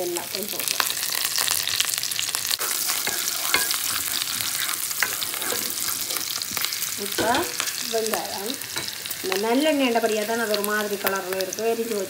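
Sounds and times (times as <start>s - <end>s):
food sizzling in oil: 0.0s - 12.0s
oil popping and crackling: 0.0s - 12.0s
spatula stirring in pan: 0.8s - 11.4s.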